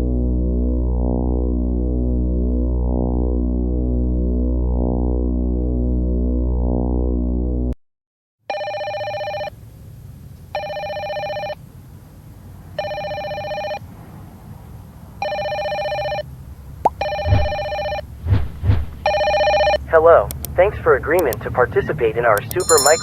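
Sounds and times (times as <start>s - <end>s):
synthesizer drone: 0.0s - 7.7s
electronic telephone ringing: 8.5s - 9.5s, 10.6s - 11.6s, 12.8s - 13.8s, 15.2s - 16.3s, 16.9s - 18.1s, 19.0s - 20.0s, 22.4s - 23.0s.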